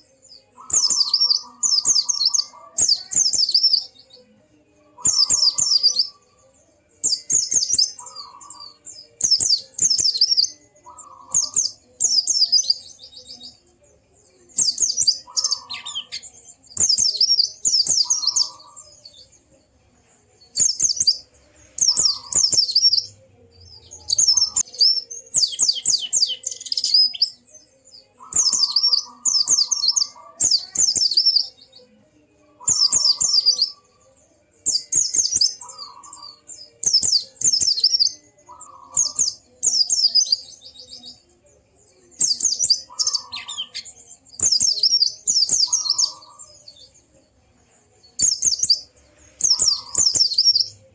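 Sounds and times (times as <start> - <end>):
bird twittering: 0.0 - 3.9, 5.0 - 6.1, 7.0 - 13.4, 14.6 - 19.0, 21.8 - 23.1, 23.8 - 27.4, 28.2 - 31.5, 32.6 - 33.8, 42.2 - 46.6, 48.2 - 50.8.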